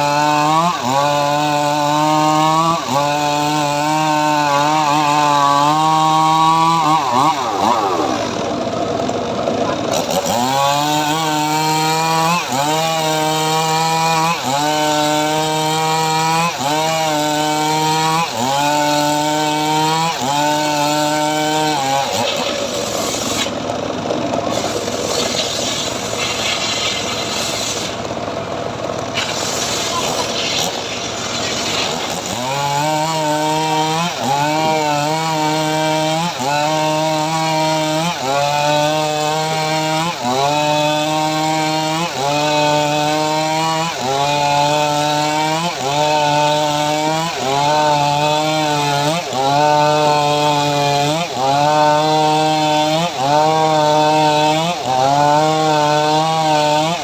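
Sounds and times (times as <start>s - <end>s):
sawmill cutting wood: 0.0s - 57.0s
sawmill machine droning: 0.0s - 57.0s.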